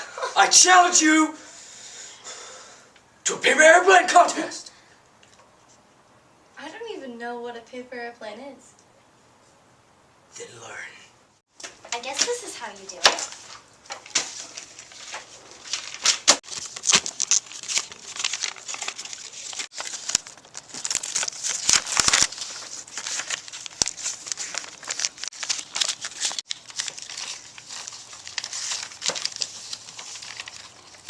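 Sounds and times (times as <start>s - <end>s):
paper rustling and crinkling: 11.6s - 31.0s.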